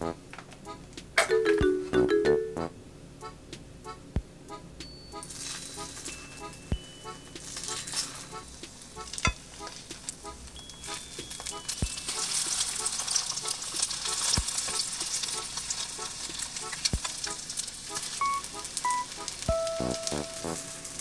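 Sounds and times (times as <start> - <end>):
faint background music: 0.0 - 21.0
food frying in oil: 7.4 - 21.0.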